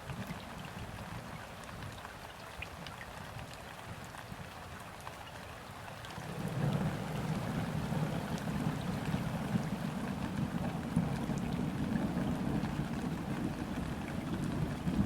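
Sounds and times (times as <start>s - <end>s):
rain pattering on water: 0.0s - 15.0s
distant thunder rumbling: 6.2s - 15.0s.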